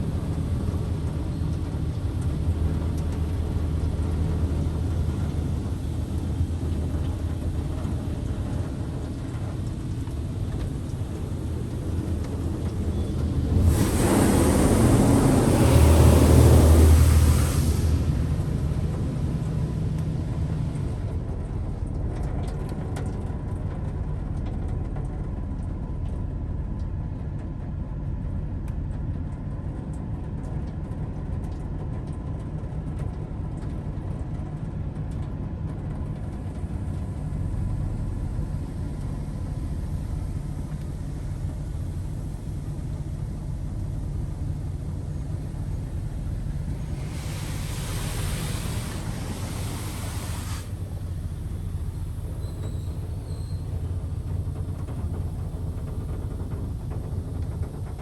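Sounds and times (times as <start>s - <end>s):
car wash machine rumble: 0.0s - 22.4s, 36.1s - 58.0s
spray hiss: 10.7s - 19.0s, 45.1s - 57.6s.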